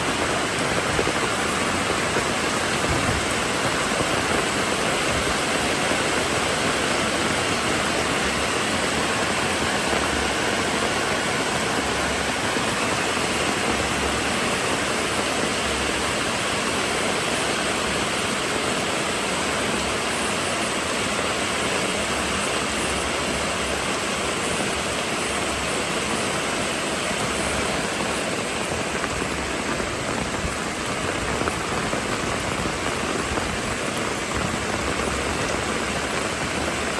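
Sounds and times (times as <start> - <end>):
steady rainfall: 0.0 - 36.9.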